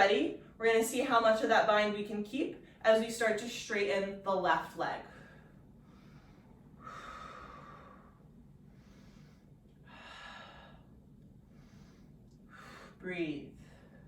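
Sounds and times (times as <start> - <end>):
person breathing slowly: 5.1 - 13.0.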